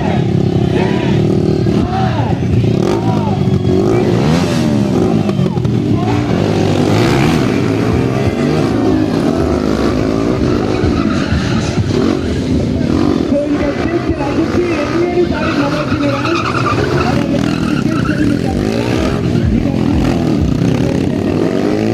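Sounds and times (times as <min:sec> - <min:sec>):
motorcycle engines revving: 0:00.0 - 0:21.9.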